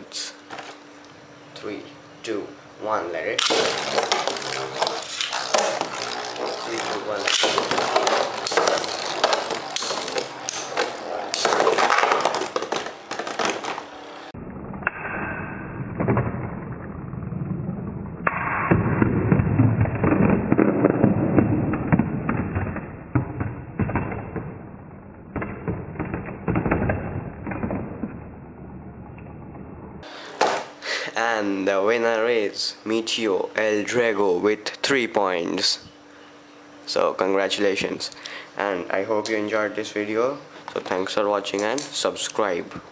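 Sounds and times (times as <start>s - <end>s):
spinning tops clashing: 3.4s - 14.1s.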